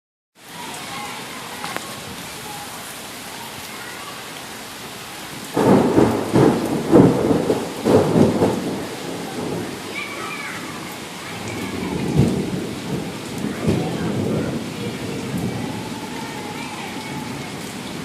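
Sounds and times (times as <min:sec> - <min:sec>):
steady rain falling: 0:00.4 - 0:18.0.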